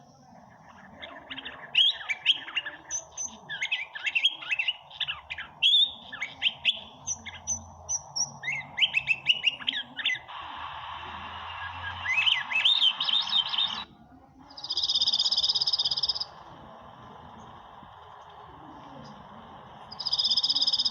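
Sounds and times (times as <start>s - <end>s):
songbirds singing: 0.0s - 20.9s.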